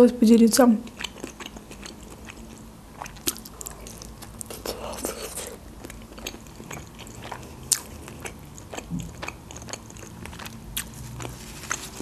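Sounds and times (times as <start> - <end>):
close-up chewing: 0.9 - 12.0
wet mouth clicks and smacks: 1.0 - 4.6.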